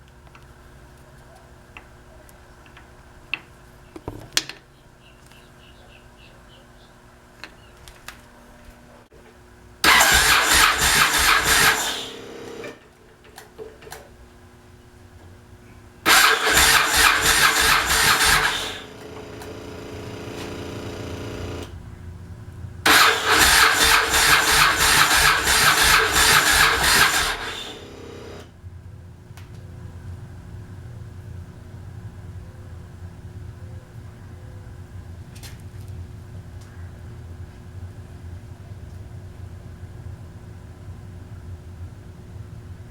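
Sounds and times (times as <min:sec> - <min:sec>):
motorcycle electric starter cranking: 0:09.8 - 0:12.8, 0:16.1 - 0:21.8, 0:22.9 - 0:28.5
steady hum: 0:16.8 - 0:22.9.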